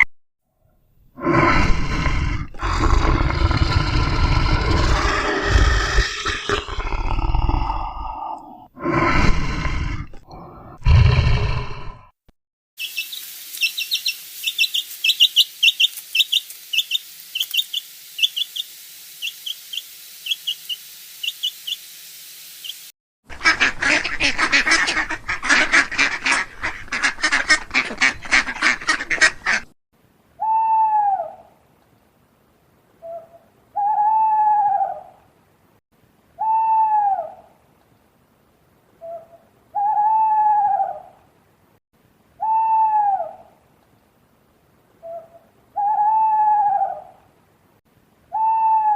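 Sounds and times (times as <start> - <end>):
bird call rising and falling: 12.8 - 22.9
rapid high bird chirping: 12.8 - 22.9
steady hiss: 12.8 - 27.6.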